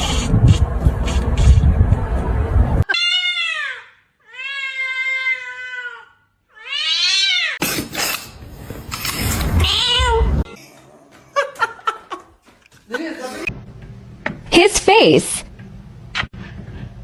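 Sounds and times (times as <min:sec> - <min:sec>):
cat meowing: 0:02.9 - 0:07.6, 0:09.5 - 0:10.5.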